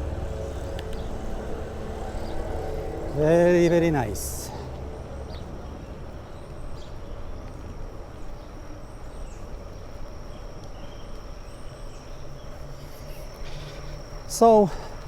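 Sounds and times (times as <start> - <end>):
bicycle tyre rumble on pavement: 0.0 - 15.0
wind: 0.0 - 15.0.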